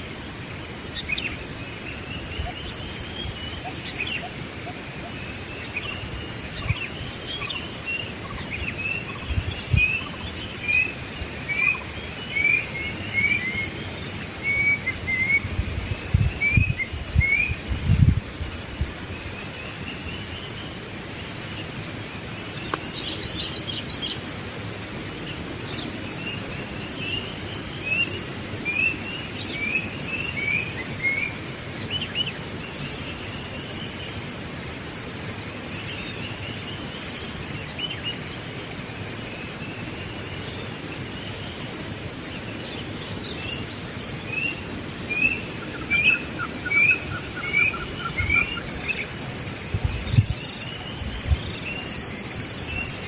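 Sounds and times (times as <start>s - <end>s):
birds chirping: 42.3s - 53.0s.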